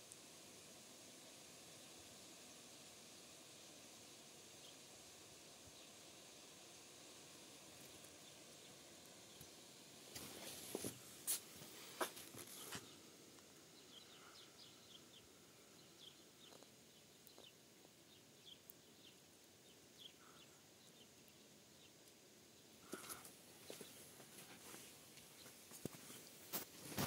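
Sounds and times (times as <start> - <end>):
distant small bird chirping: 12.0 - 24.1
brief rustle: 25.8 - 27.0.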